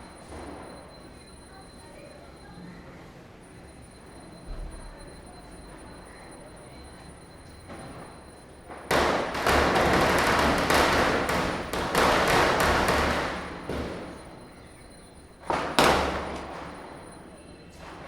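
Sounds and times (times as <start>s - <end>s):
firecrackers bursting: 8.8s - 14.6s, 15.4s - 17.3s.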